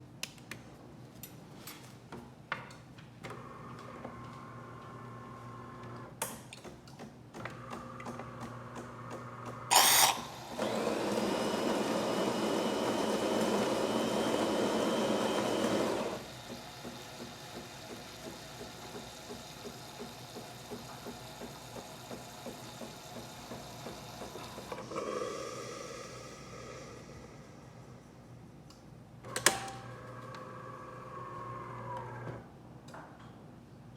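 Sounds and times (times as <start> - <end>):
coffee grinder running: 9.7 - 27.3.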